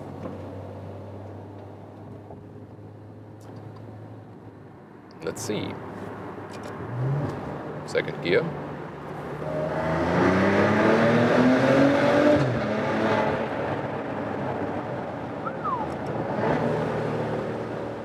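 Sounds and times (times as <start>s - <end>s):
car engine accelerating: 6.4s - 18.0s.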